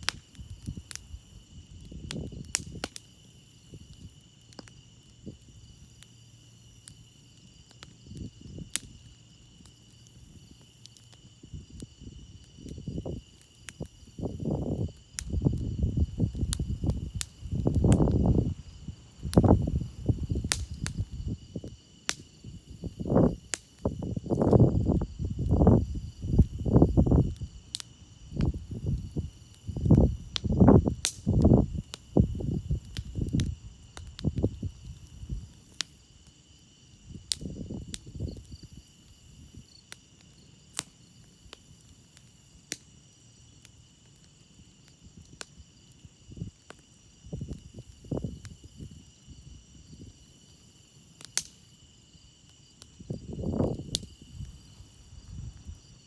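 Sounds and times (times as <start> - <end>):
campfire crackling and popping: 0.0 - 56.0
crickets chirping: 0.0 - 56.0
wind gusts: 14.1 - 21.8, 22.4 - 35.6, 53.0 - 56.0.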